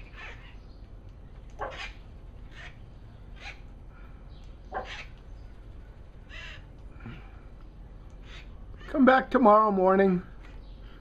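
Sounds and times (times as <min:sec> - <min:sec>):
parrots squawking: 0:00.0 - 0:00.8, 0:01.5 - 0:03.7, 0:04.7 - 0:05.2, 0:06.2 - 0:06.8, 0:08.1 - 0:09.1.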